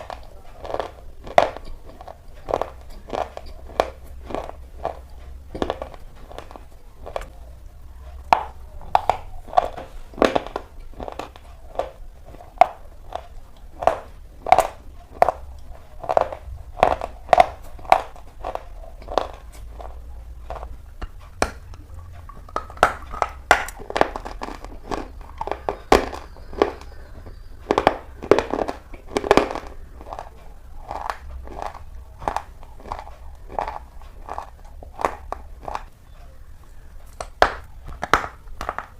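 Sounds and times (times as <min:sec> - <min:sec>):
crunching chewing: 0:00.0 - 0:38.9.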